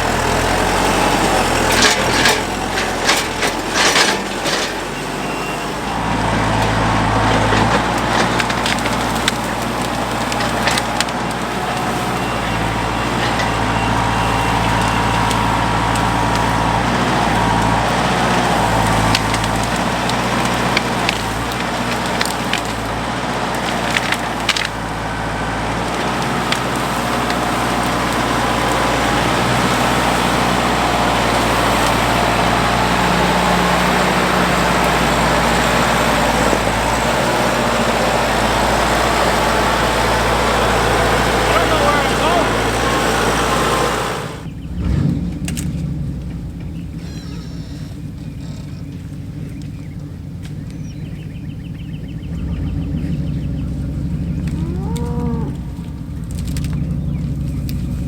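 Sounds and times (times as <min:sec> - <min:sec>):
heavy engine running: 0:00.0 - 0:58.0
sharp cracks: 0:06.6 - 0:12.0, 0:14.7 - 0:44.5, 0:53.7 - 0:58.0.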